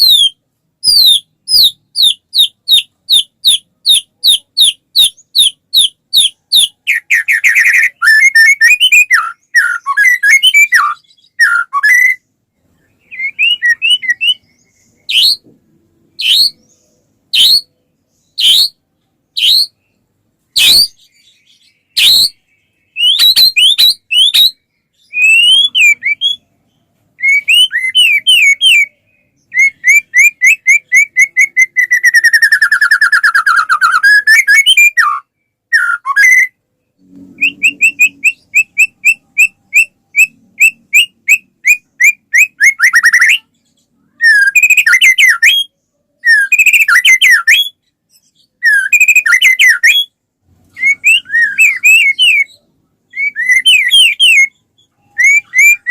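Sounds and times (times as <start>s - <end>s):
bird singing whistled phrases: 0.0s - 12.2s, 12.9s - 15.5s, 16.1s - 18.8s, 19.4s - 20.0s, 20.6s - 26.5s, 27.2s - 36.6s, 37.4s - 55.9s.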